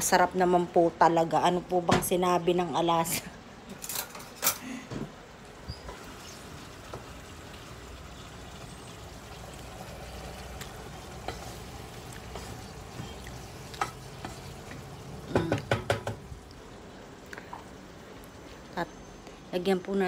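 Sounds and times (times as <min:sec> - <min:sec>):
food sizzling in pot: 0:05.4 - 0:16.3
kitchenware knocking and clinking: 0:15.3 - 0:16.3.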